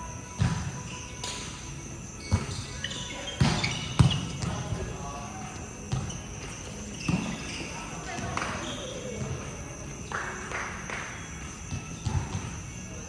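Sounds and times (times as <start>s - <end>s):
ball bouncing on floor: 5.9s - 9.3s.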